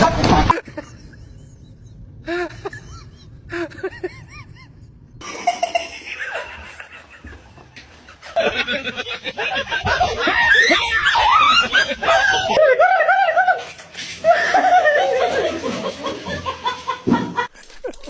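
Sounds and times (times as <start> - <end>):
person laughing: 2.3 - 18.0.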